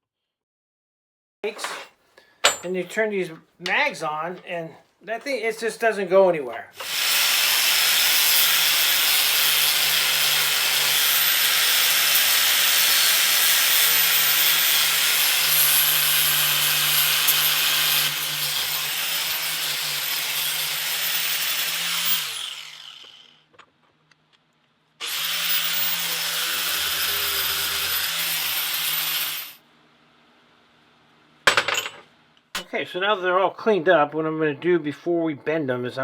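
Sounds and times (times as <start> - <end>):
angle grinder grinding metal: 6.8 - 23.4, 25.0 - 29.6.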